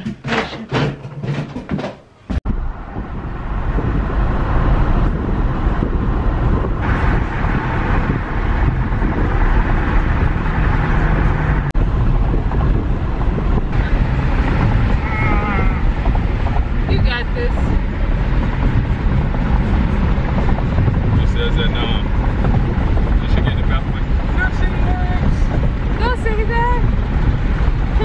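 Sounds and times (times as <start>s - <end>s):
car cabin road and engine noise: 2.1s - 28.0s.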